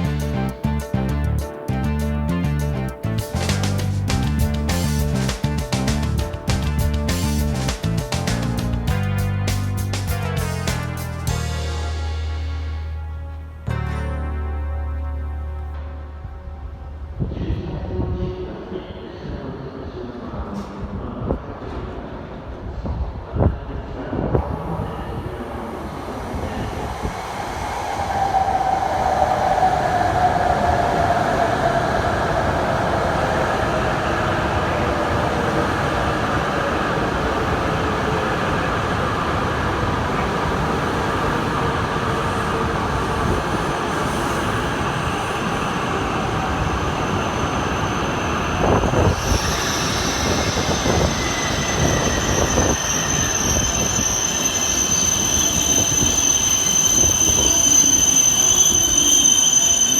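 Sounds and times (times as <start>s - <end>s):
train rail noise: 0.0s - 12.8s, 17.0s - 59.9s
high thin squeal: 46.6s - 59.9s.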